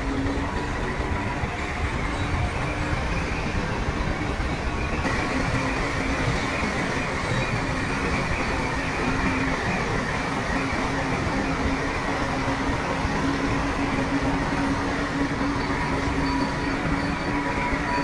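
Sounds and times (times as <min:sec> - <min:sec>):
diesel earthmoving machinery running: 0:00.0 - 0:18.0.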